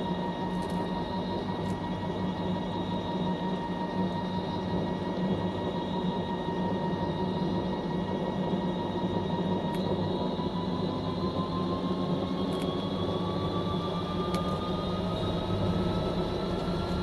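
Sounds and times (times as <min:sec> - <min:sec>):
washing machine running: 0:00.0 - 0:17.0.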